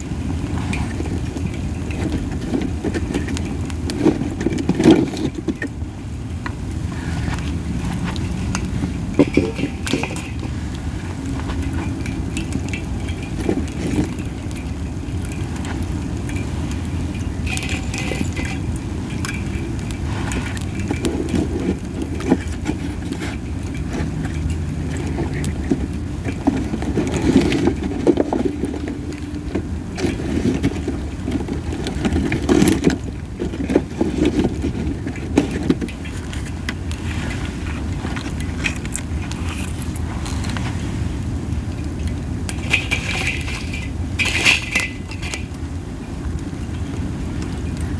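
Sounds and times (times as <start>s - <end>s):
wind rumbling on microphone: 0.0s - 47.9s
campfire crackles and pops: 5.6s - 27.2s, 34.6s - 47.9s.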